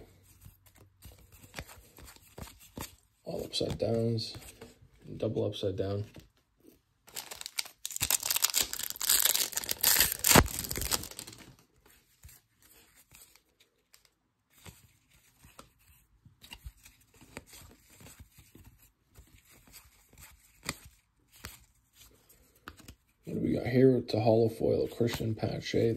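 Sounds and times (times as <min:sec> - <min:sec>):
cards rustling and clicking: 0:00.0 - 0:05.1, 0:07.1 - 0:23.2, 0:24.9 - 0:25.9
foil wrapper tearing and crinkling: 0:07.1 - 0:11.6.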